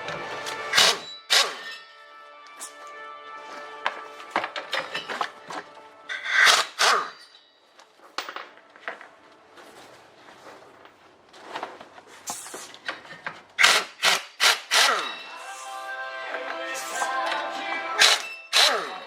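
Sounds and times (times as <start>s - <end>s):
metal tools clinking: 0.7s - 2.8s, 4.6s - 8.8s, 14.9s - 15.4s, 18.0s - 19.0s.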